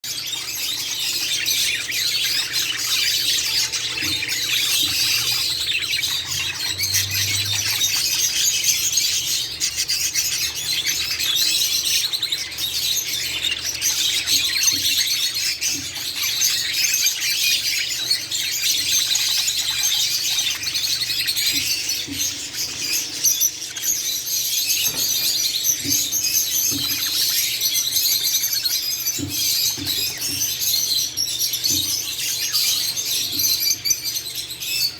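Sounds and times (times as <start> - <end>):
budgerigars chattering and warbling: 0.0 - 34.9.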